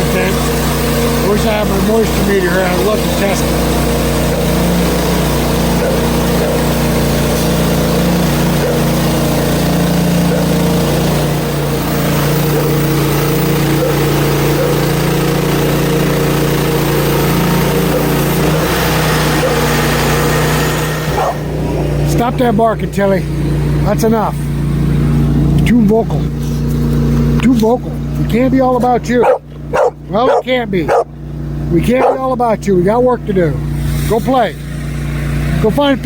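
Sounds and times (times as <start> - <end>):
band blade sawing through log: 0.0 - 22.5
gas engine running under load: 0.0 - 36.0.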